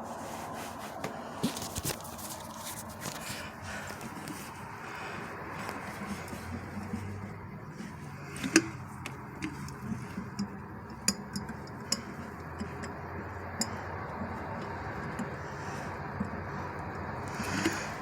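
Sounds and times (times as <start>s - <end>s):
steady low hum: 0.0s - 18.0s
light clicks and taps: 5.5s - 18.0s.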